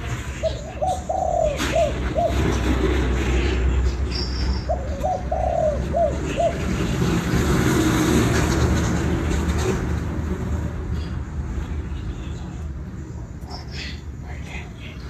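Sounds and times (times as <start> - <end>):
dove cooing: 0.4 - 3.5, 4.6 - 7.0.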